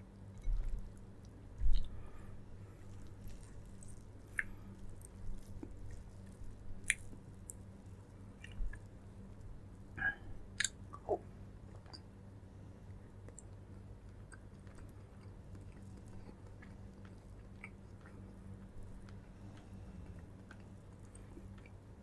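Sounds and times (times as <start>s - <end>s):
steady low hum: 0.0s - 22.0s
person chewing: 0.4s - 8.9s, 10.0s - 12.1s, 13.2s - 21.8s
small mouth clicks: 10.6s - 12.1s.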